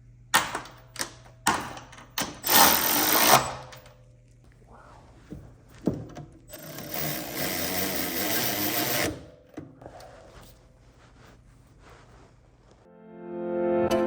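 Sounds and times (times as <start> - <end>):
power tool rattling: 1.5 - 3.8, 6.5 - 9.5.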